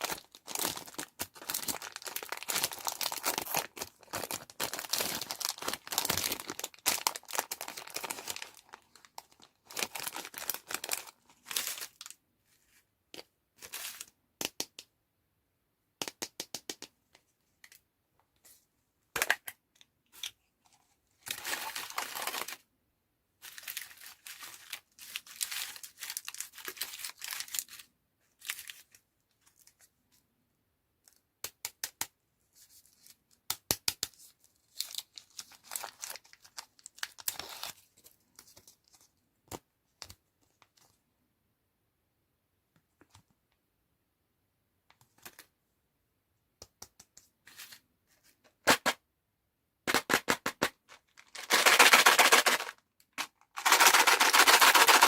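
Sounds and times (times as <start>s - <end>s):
candy packaging crinkling: 0.0s - 12.2s, 21.2s - 22.7s, 23.4s - 29.9s, 34.6s - 39.1s, 49.9s - 55.0s.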